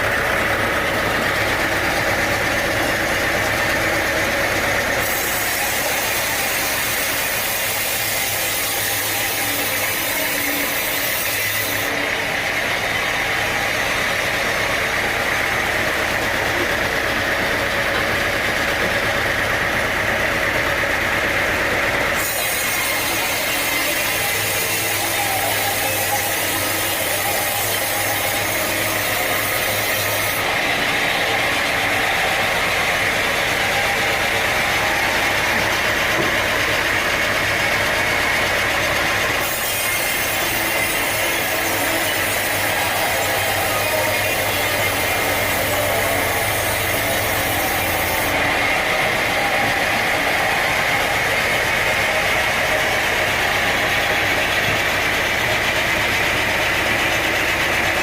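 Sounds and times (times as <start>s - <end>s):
engine drone: 0.0s - 58.0s
sawing noise: 0.0s - 58.0s.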